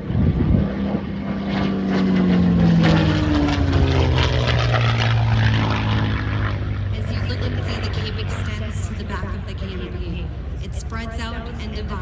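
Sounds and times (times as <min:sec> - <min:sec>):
propeller airplane flying past: 0:00.0 - 0:12.0.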